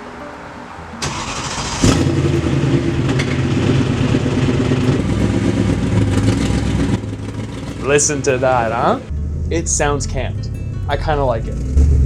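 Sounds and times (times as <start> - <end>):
car engine cranking: 0.9 - 12.0
engine starting burst: 1.0 - 8.2
lumpy engine idling: 1.0 - 12.0.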